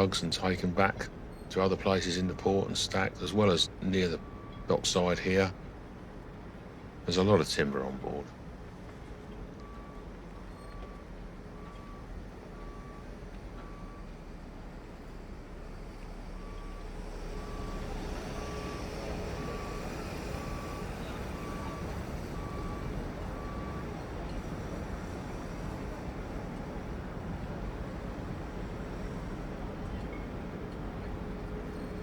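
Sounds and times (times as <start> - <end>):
reversing alarm beeping: 2.1 - 4.9, 9.6 - 14.1, 16.3 - 25.9
diesel engine running: 11.6 - 29.8.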